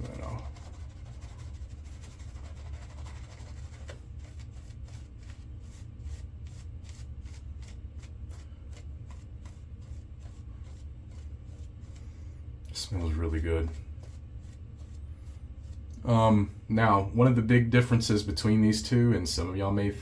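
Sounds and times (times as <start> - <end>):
shaving brush working lather: 0.0 - 16.3
steady low hum: 0.0 - 20.0.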